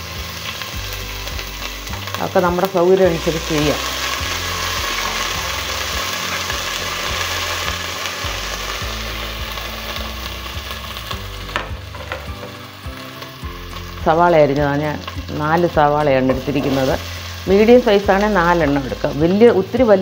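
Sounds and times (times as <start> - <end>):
garlic sizzling in oil: 0.0 - 20.0.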